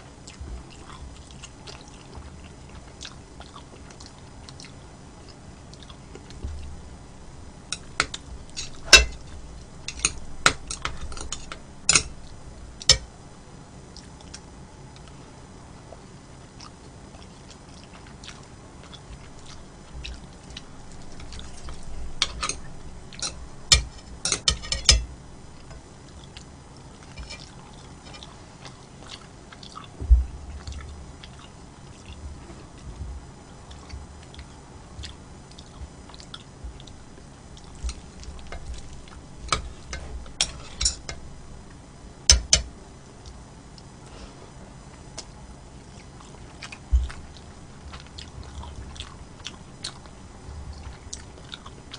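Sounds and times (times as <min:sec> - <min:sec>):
person chewing food: 0:00.0 - 0:13.1, 0:15.9 - 0:44.0, 0:44.9 - 0:51.9
utensils clicking on dishes: 0:07.7 - 0:12.2, 0:22.2 - 0:25.8, 0:39.5 - 0:41.2, 0:42.3 - 0:42.7
dull thump: 0:30.0 - 0:30.5.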